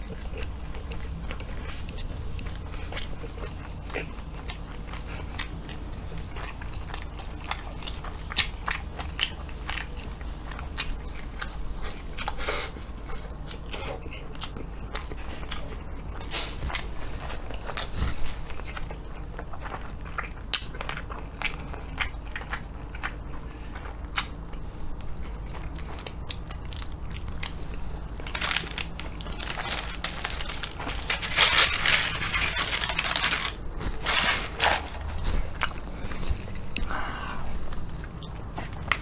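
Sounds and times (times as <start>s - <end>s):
close chewing: 0.0s - 39.0s
paper wrapper crinkling: 27.4s - 36.6s.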